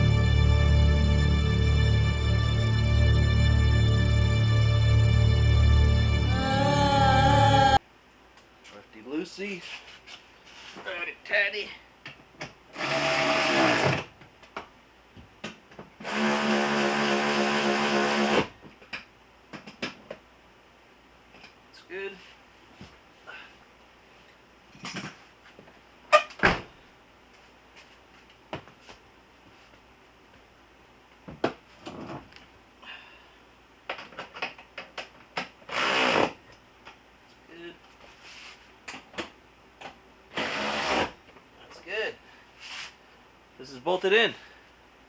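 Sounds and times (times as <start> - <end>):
power drill motor whining: 12.8 - 14.1, 16.0 - 18.5, 35.7 - 36.4, 40.3 - 41.2
loud rasp: 40.3 - 41.2.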